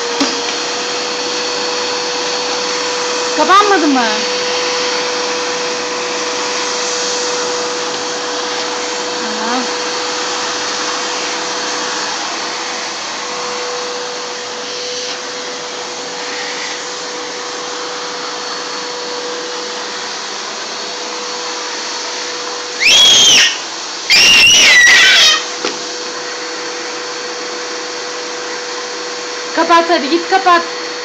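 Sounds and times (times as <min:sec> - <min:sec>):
vacuum cleaner humming: 0:00.0 - 0:31.0
high-pitched squeals: 0:22.8 - 0:25.5.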